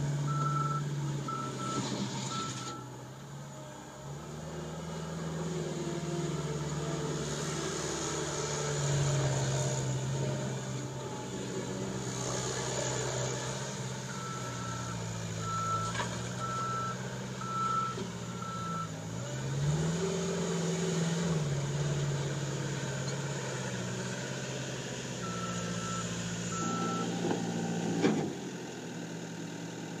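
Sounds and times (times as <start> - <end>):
diesel engine revving: 0.0 - 2.8, 3.9 - 29.3
reverse alarm beeping: 25.2 - 27.2.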